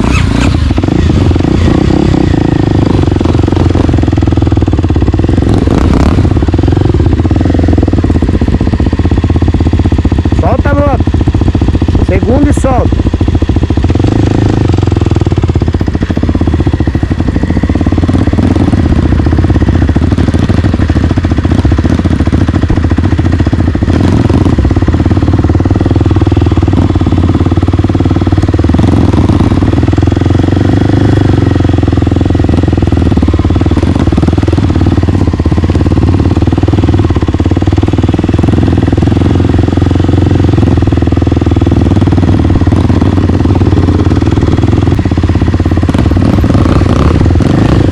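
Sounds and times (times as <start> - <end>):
motorcycle engine running steadily: 0.0 - 47.9.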